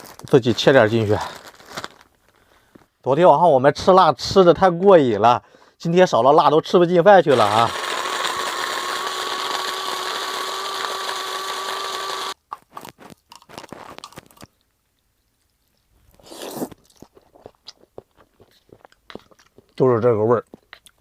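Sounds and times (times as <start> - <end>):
small motor whining: 7.3 - 12.4.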